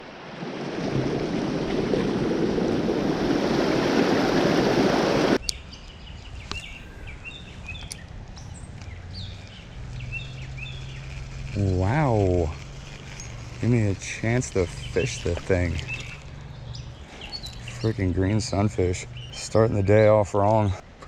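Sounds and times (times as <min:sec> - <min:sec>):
creek water rushing: 0:00.0 - 0:05.4
small birds chirping: 0:05.4 - 0:21.0.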